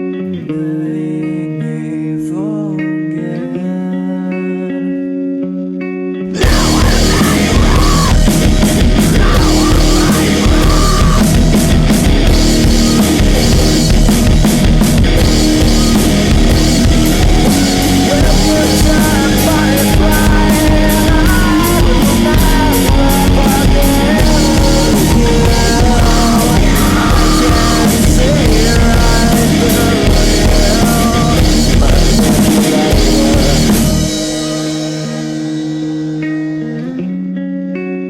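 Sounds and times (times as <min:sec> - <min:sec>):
bending lead guitar melody: 0:00.0 - 0:38.0
rock guitars: 0:00.0 - 0:38.0
drum-kit beats: 0:06.4 - 0:36.6.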